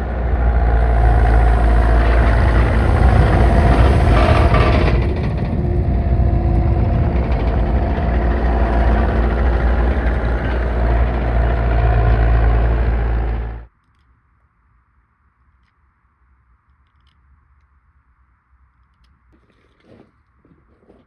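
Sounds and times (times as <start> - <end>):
engine running with low rumble: 0.0 - 13.7.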